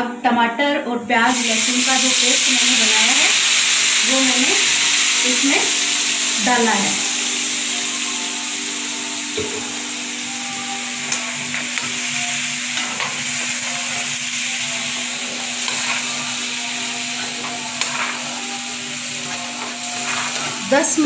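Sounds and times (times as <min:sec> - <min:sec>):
paste sizzling in hot oil: 0:01.3 - 0:21.0
metal spoon scraping pan: 0:19.2 - 0:21.0.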